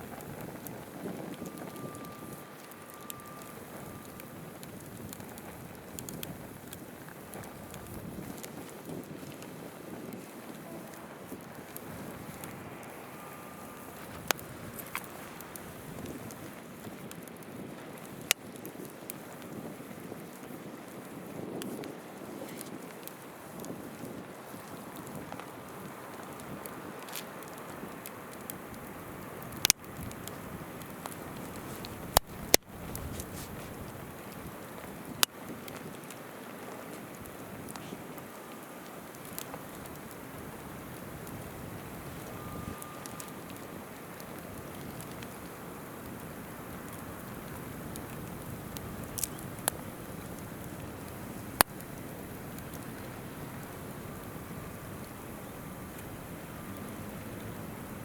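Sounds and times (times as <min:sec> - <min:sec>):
campfire crackling: 0:00.0 - 0:58.0
sharp fire pops: 0:00.0 - 0:58.0
river flowing: 0:10.2 - 0:15.8.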